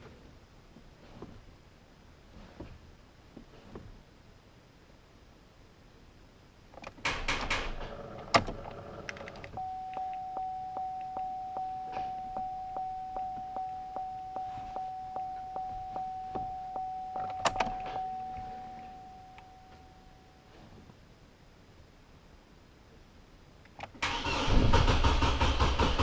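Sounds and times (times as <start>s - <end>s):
warning chime dinging: 9.6s - 20.5s.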